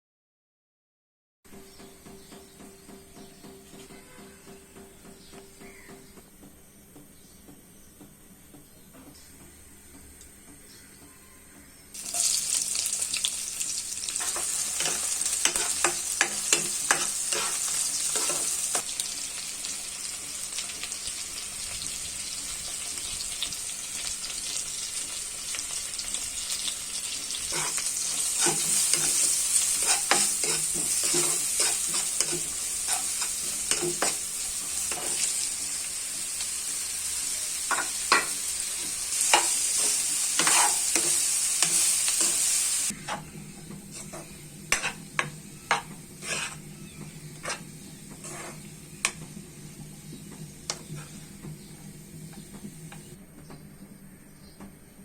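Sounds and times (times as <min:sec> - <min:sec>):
food sizzling in hot oil: 0:11.9 - 0:43.2, 0:43.9 - 0:52.2
utensil knocking and scraping pan: 0:27.5 - 0:35.3, 0:37.7 - 0:42.4, 0:43.9 - 0:49.2.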